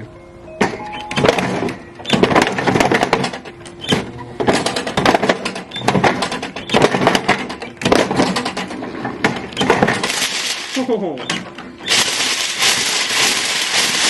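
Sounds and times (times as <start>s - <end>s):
lawnmower blade crunching plastic: 4.6s - 11.0s, 11.8s - 14.0s.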